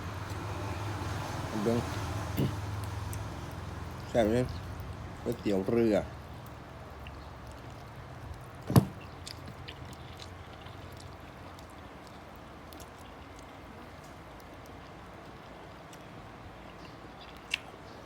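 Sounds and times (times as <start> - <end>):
sharp knock: 8.7 - 9.0.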